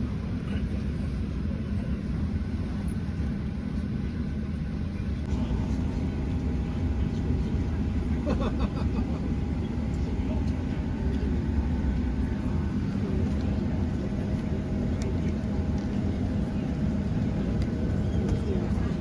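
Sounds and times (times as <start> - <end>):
airplane cabin rumble: 0.0 - 19.0
faint steady whine: 5.0 - 19.0.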